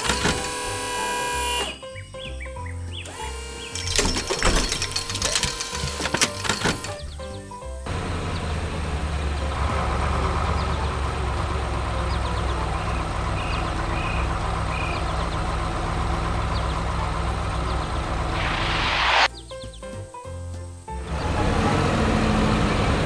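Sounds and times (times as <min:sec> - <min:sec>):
heavy vehicle engine idling: 0:05.9 - 0:18.5, 0:21.0 - 0:23.0
rush of noise: 0:17.8 - 0:19.3.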